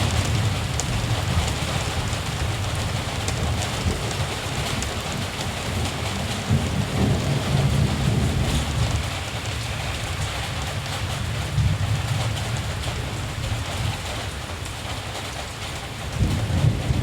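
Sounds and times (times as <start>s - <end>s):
distant thunder rumble: 0.0s - 9.5s, 16.0s - 17.0s
steady rain falling: 0.0s - 17.0s.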